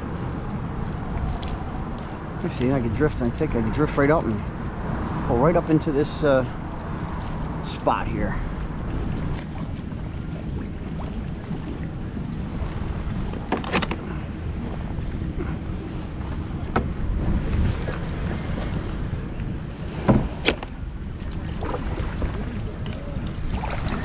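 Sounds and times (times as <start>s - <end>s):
wind on microphone: 0.0s - 24.0s
water slapping against kayak hull: 6.5s - 24.0s.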